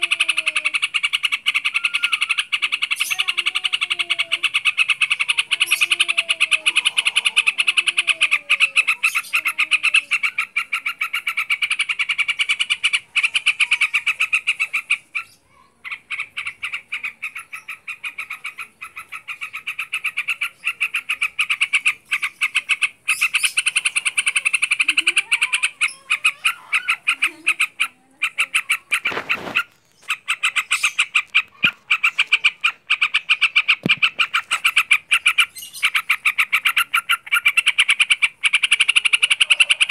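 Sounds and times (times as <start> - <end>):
bird rattling chatter: 15.8 - 39.9.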